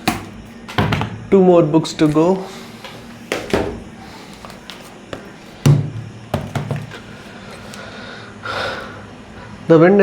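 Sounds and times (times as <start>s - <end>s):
books tapping and knocking: 0.0s - 1.2s, 3.3s - 7.0s
book heavy thump: 3.3s - 3.9s, 5.6s - 7.0s.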